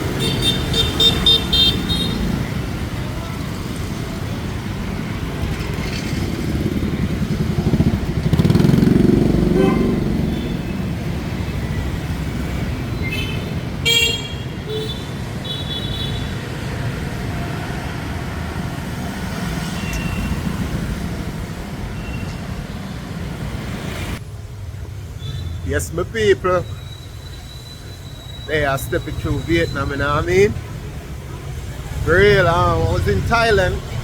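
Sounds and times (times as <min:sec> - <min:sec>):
horns honking: 0:00.0 - 0:02.6, 0:08.4 - 0:11.0, 0:12.9 - 0:16.5
loud vehicle passing: 0:00.0 - 0:13.8
motorbikes and scooters passing: 0:00.0 - 0:25.7, 0:29.2 - 0:34.0.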